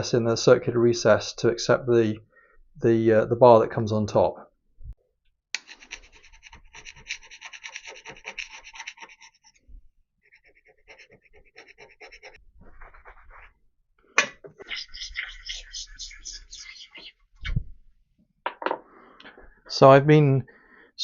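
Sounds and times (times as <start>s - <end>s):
hand scraper rasping on metal: 5.6s - 9.6s, 10.2s - 12.4s.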